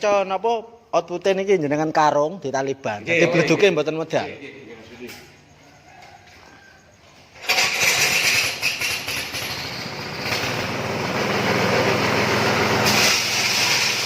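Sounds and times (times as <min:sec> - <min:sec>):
machine running loudly: 0:09.3 - 0:14.0.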